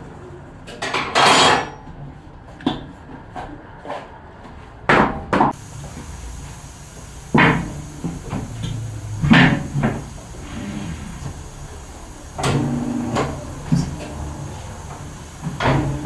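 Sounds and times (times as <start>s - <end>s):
heavy metallic knocks and clanks: 5.5s - 16.0s
steady background hiss: 5.5s - 16.0s.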